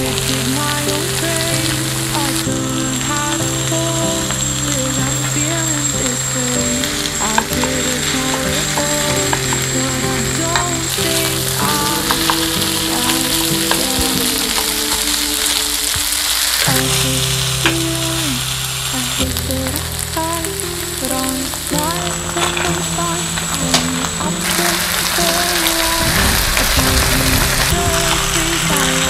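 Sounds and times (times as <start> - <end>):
rice sizzling in a frying pan: 0.0 - 29.0.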